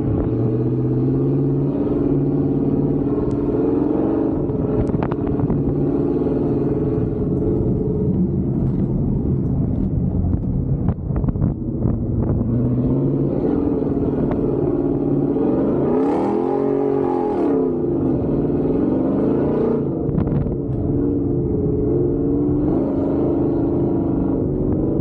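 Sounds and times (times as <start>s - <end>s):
truck engine revving: 11.8s - 25.0s.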